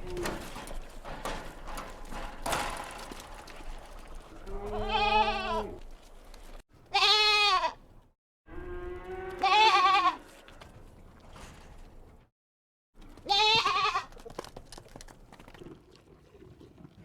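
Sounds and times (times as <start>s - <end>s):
young goats bleating: 4.6s - 5.8s, 6.9s - 7.8s, 9.3s - 10.2s, 13.2s - 14.1s.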